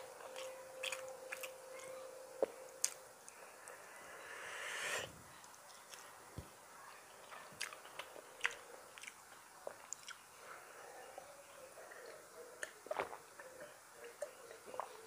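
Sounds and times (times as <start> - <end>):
man chewing food: 0.0 - 3.8, 7.6 - 10.7, 11.8 - 15.0
rising rush of noise: 3.4 - 5.3.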